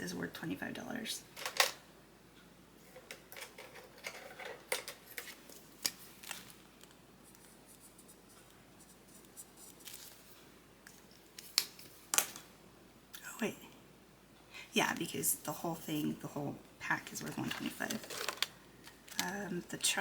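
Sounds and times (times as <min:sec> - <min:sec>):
paper rustling: 0:05.1 - 0:08.2, 0:09.1 - 0:12.0, 0:17.0 - 0:19.4.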